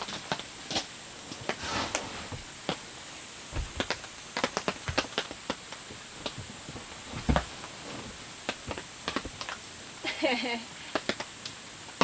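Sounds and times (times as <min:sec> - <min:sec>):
soft low thud: 0:03.5 - 0:04.1, 0:06.2 - 0:08.3.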